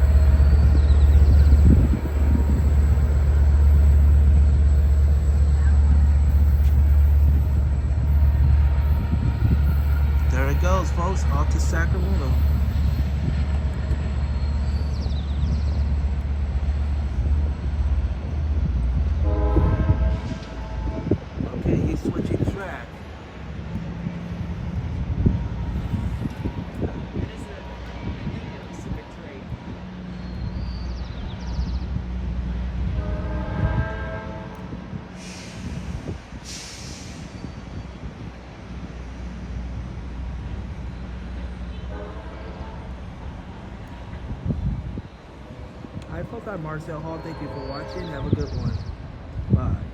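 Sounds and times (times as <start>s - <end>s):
train horn: 0.0s - 12.7s, 19.2s - 21.4s, 32.8s - 35.8s, 41.6s - 43.1s, 47.1s - 48.7s
passenger train rumbling: 0.0s - 49.9s
short hisses: 35.2s - 37.4s.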